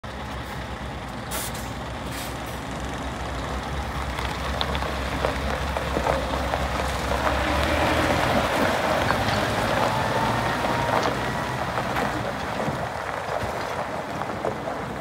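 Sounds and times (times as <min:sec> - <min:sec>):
truck diesel engine idling: 0:00.0 - 0:13.3
short air hisses: 0:01.3 - 0:02.6.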